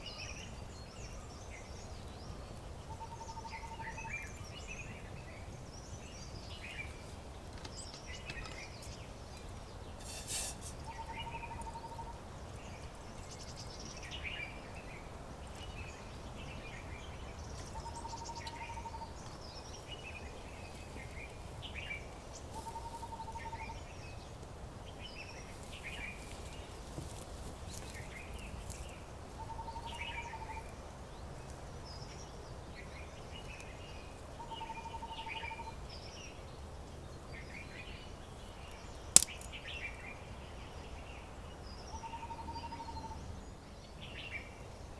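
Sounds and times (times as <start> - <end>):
sharp click: 39.2 - 39.6.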